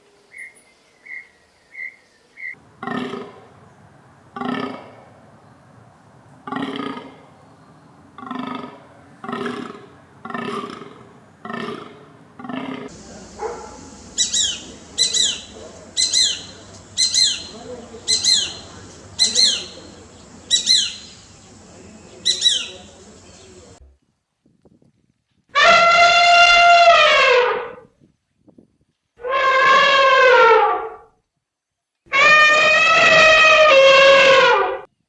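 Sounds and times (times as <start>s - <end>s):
high chirping animal calls: 0.3s - 2.6s, 12.9s - 23.8s
long pitched animal call: 12.4s - 21.4s, 25.6s - 27.8s, 32.1s - 34.8s.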